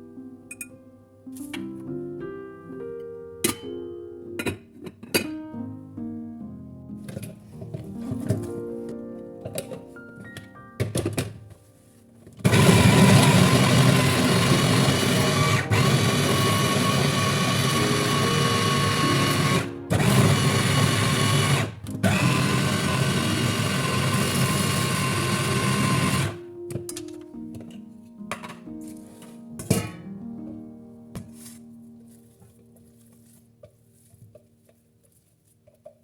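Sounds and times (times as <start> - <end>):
blender motor running: 12.5 - 26.4.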